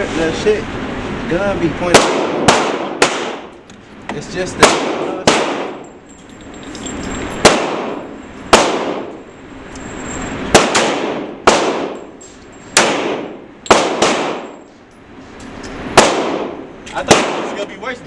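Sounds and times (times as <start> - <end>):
echoing handgun shots: 1.9 - 3.5, 4.6 - 6.0, 7.4 - 9.2, 10.5 - 12.2, 12.8 - 14.7, 16.0 - 17.7.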